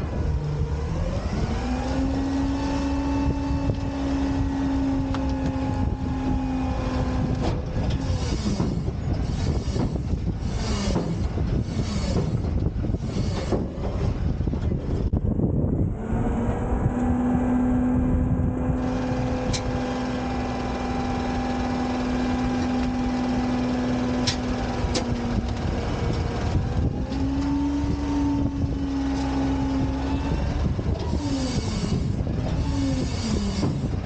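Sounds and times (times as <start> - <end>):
garbage truck hydraulics whining: 0.0 - 34.0
sliding squealing tones: 3.8 - 14.0, 27.2 - 34.0.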